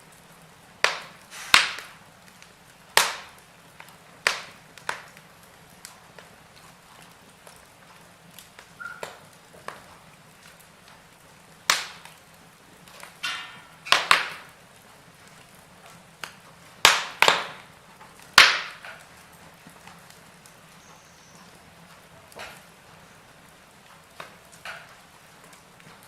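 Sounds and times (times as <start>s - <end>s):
faint background hiss: 0.0s - 26.0s
logs crackling in fireplace: 0.0s - 26.0s
hiss of escaping gas: 1.3s - 1.9s.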